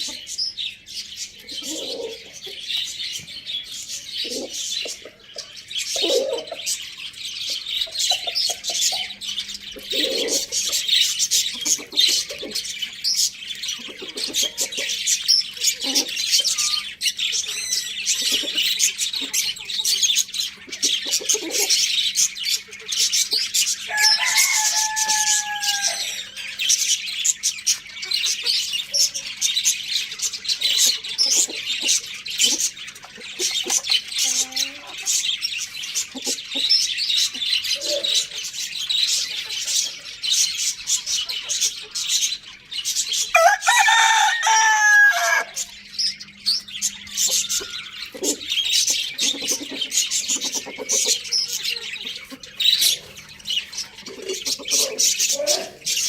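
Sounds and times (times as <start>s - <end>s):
small birds chirping: 0.0s - 56.0s
rooster crowing: 23.9s - 26.4s, 43.3s - 45.7s.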